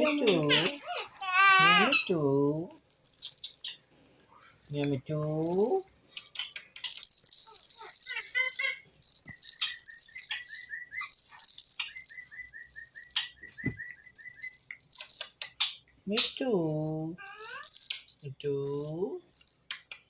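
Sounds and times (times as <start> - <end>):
pet birds chirping: 0.0 - 2.2, 3.0 - 3.9, 5.6 - 18.1.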